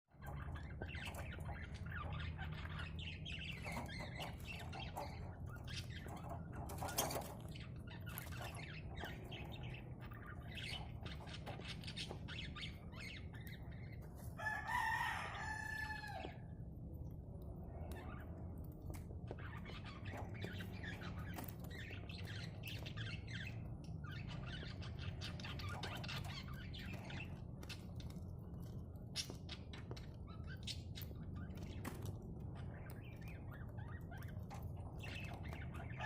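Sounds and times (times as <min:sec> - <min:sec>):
budgerigars chirping: 0:00.2 - 0:16.3, 0:19.3 - 0:28.1
rooster crowing: 0:14.4 - 0:16.5.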